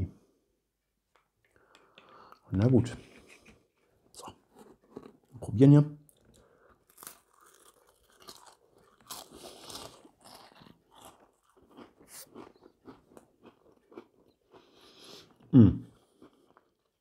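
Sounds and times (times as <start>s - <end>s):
mouth crunching and chewing cracker: 4.1s - 17.0s.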